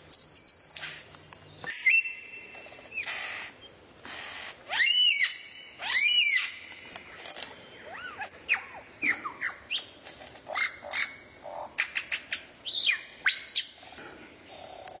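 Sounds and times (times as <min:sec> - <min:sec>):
songbird whistled calls: 0:00.1 - 0:00.8, 0:01.6 - 0:03.1, 0:07.8 - 0:10.0, 0:11.9 - 0:13.8.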